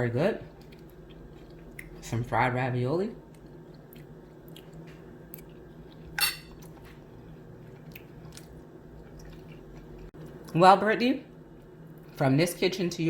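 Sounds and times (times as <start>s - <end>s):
low steady hum: 0.0s - 13.0s
cutlery clinking on a plate: 6.2s - 6.6s.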